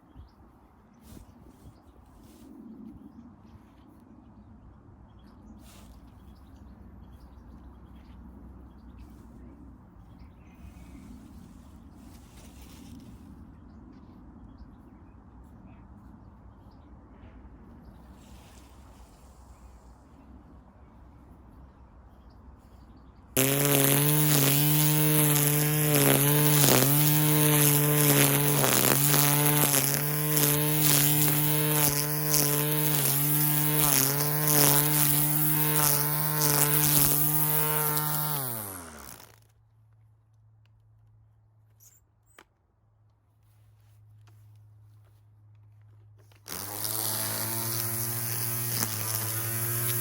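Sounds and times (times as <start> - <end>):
grass trimmer motor running: 23.4 - 39.5, 46.3 - 50.0.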